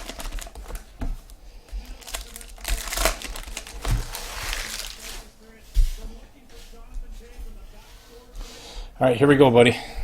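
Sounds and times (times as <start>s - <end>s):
card wrappers crinkling: 0.0s - 5.3s.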